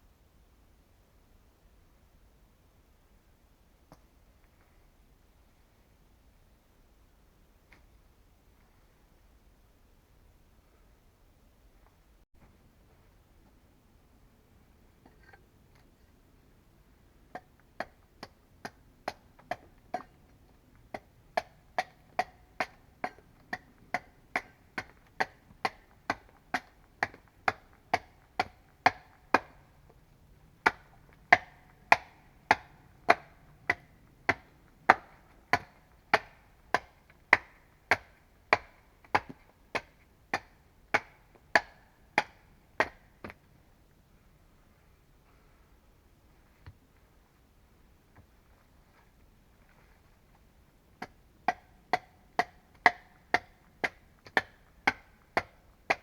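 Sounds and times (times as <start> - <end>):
wooden mallet striking wood: 20.9 - 29.6, 30.6 - 43.4, 51.0 - 56.0.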